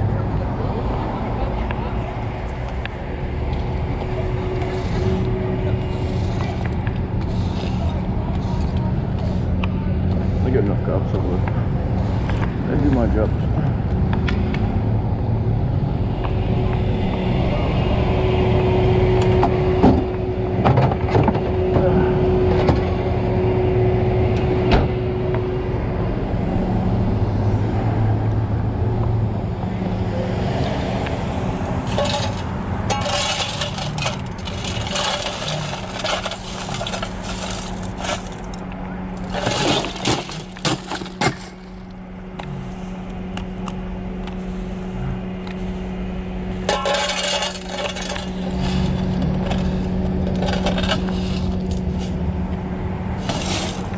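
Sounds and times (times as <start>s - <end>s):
vehicle engine idling: 0.0s - 14.1s, 31.0s - 53.9s
scraping and clinking: 31.8s - 38.6s, 39.2s - 41.7s, 46.6s - 52.2s, 53.2s - 53.9s.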